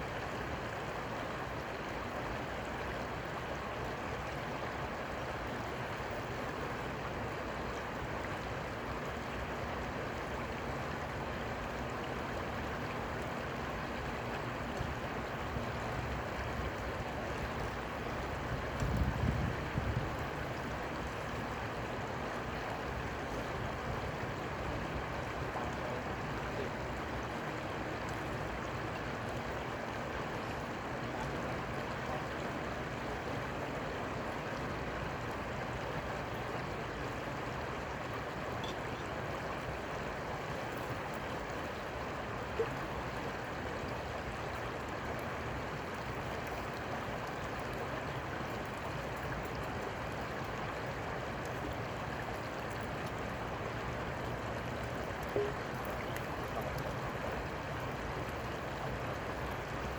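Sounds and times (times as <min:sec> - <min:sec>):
flowing river water: 0:00.0 - 0:59.9
faint tick: 0:18.7 - 0:19.1.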